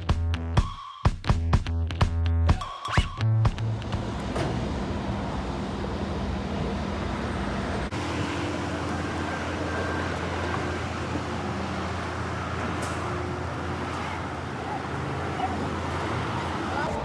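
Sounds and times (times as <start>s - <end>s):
street traffic noise: 3.2s - 17.0s
low engine hum: 3.4s - 17.0s.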